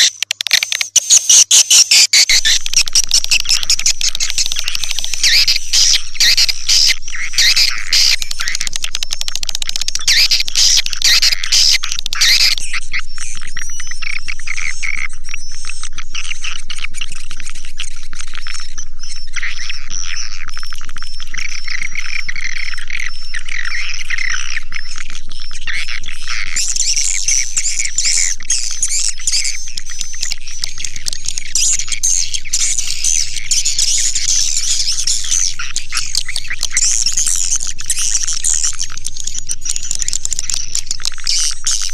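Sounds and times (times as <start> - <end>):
swiftlets twittering: 0.0 - 15.6, 26.3 - 41.9.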